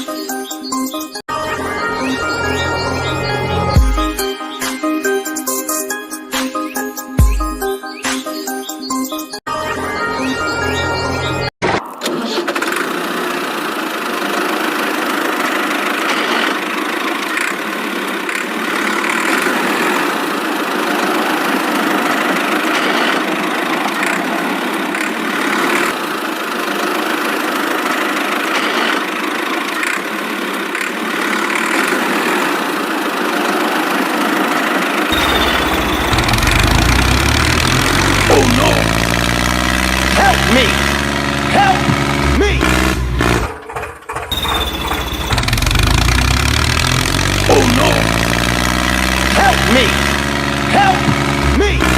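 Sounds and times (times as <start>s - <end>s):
engine running: 12.1s - 51.9s.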